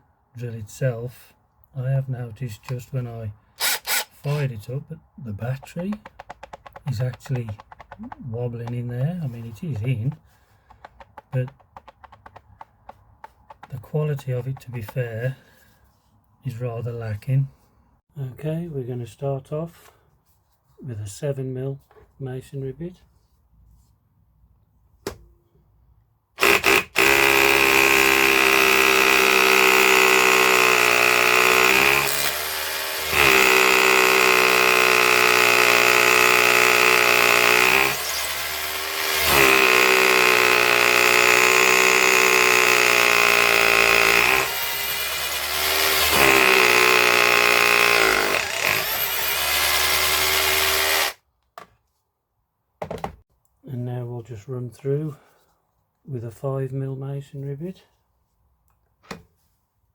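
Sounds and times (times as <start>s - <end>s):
hammer drill motor whine: 3.6s - 4.4s, 26.4s - 51.2s.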